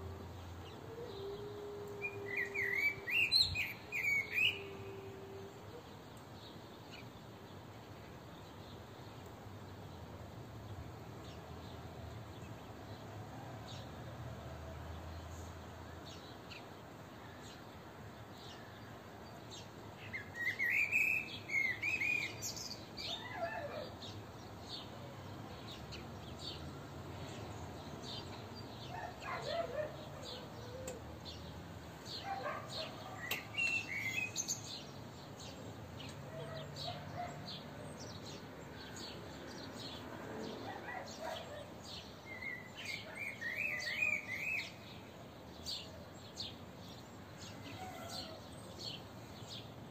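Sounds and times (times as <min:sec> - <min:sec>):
birds chirping: 0:00.0 - 0:06.6, 0:19.5 - 0:49.8.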